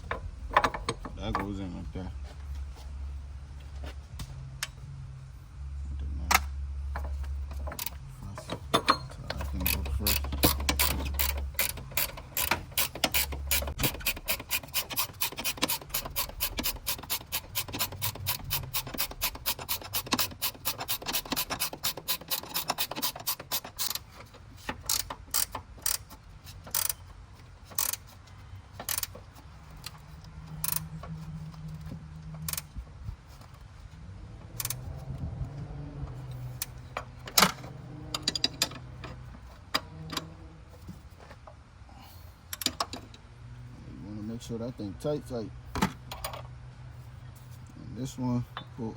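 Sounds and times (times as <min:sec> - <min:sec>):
ratchet wrench clicking: 0:08.8 - 0:24.0, 0:24.8 - 0:27.0, 0:27.7 - 0:28.1, 0:28.8 - 0:29.2, 0:29.8 - 0:30.9, 0:32.4 - 0:32.7, 0:34.5 - 0:34.9.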